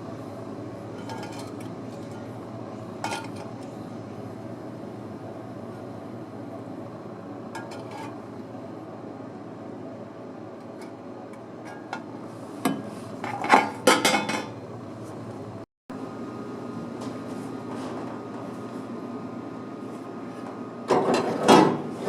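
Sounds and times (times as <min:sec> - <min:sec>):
steady low hum: 0:00.0 - 0:21.2
metal clanking on a workbench: 0:12.7 - 0:14.5.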